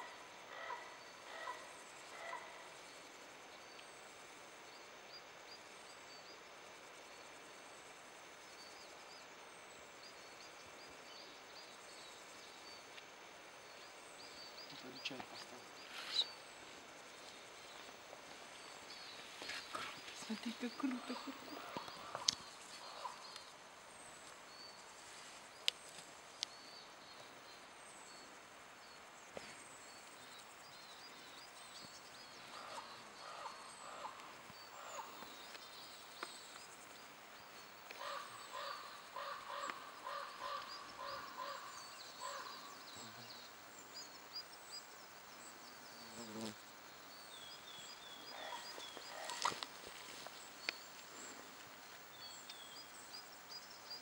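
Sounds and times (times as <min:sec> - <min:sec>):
lower repeated bird calls: 0:00.0 - 0:03.8, 0:18.6 - 0:23.6, 0:29.4 - 0:44.6
small birds chirping: 0:08.5 - 0:54.0.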